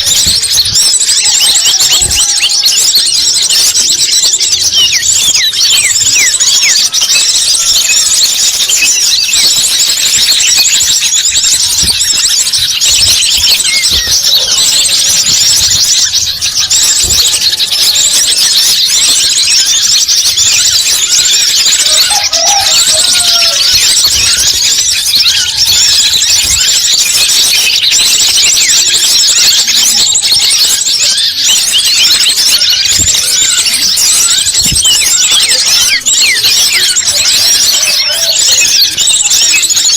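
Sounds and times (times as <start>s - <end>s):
small birds chattering: 0.0s - 39.9s.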